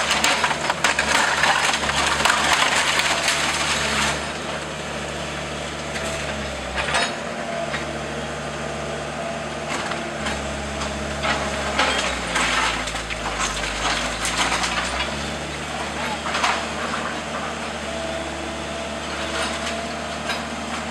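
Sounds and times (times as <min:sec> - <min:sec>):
timbers cracking and splintering: 0:00.0 - 0:04.7, 0:09.7 - 0:17.6.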